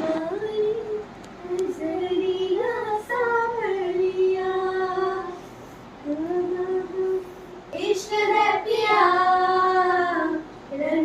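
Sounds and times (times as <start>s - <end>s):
child singing: 7.8s - 11.0s.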